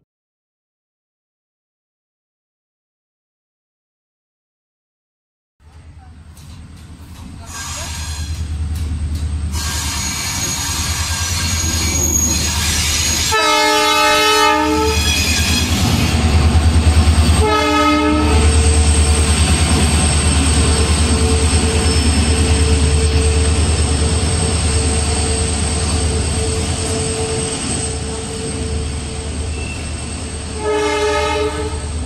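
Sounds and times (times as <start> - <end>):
train rumbling past: 5.6 - 32.0
train horn: 7.4 - 8.5, 9.5 - 16.2, 17.4 - 18.8, 30.4 - 32.0.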